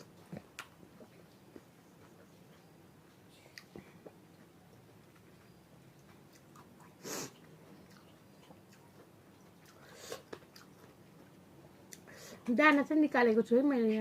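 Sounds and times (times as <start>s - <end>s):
chewing and biting food: 3.5s - 12.1s.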